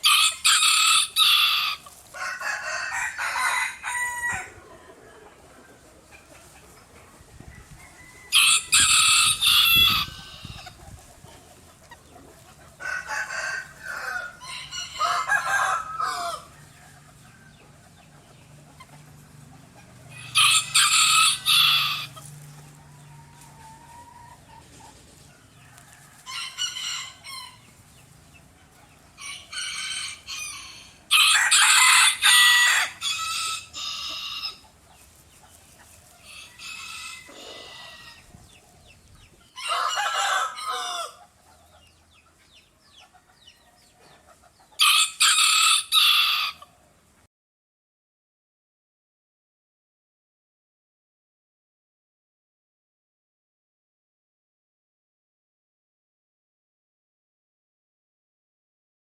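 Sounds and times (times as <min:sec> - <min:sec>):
roosters crowing: 0:00.0 - 0:10.8, 0:11.4 - 0:42.0, 0:44.8 - 0:46.8.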